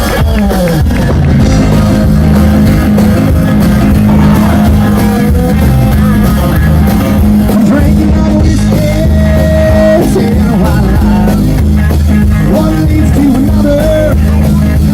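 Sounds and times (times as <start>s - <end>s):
live rock band playing: 0.0s - 14.9s
person singing: 1.4s - 14.9s.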